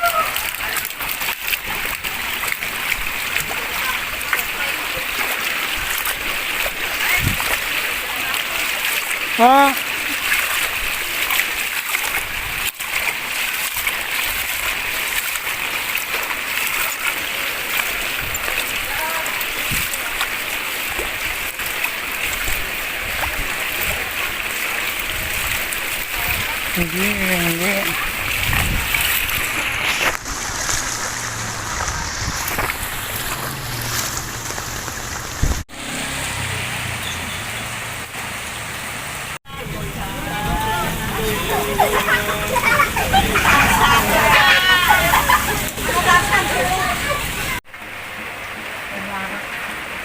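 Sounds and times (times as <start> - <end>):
rain falling: 0.0 - 50.0.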